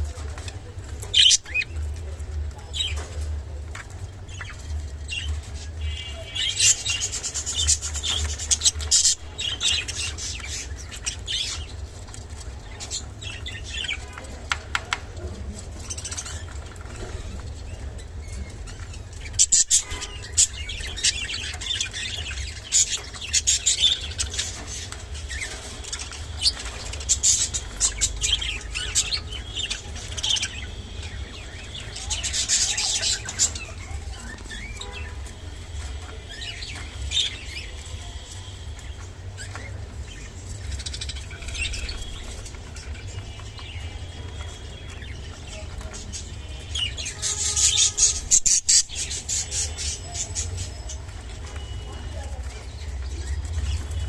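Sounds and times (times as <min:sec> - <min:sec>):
sharp clicks and taps: 0:14.4 - 0:15.1
budgerigars chirping: 0:18.7 - 0:54.0.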